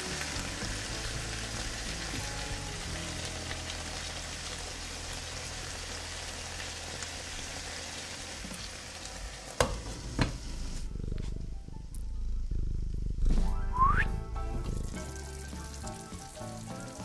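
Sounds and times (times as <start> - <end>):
food sizzling in a frying pan: 0.0 - 10.8, 14.7 - 17.0.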